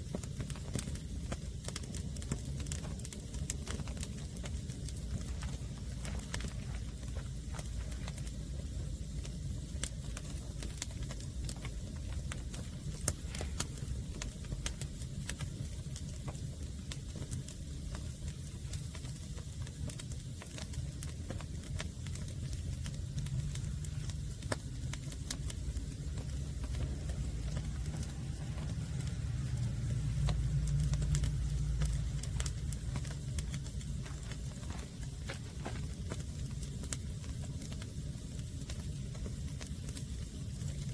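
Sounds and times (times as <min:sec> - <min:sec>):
sharp pops of burning logs: 0:00.0 - 0:40.9
wood fire crackling: 0:00.0 - 0:40.9
low rumble: 0:21.2 - 0:37.6.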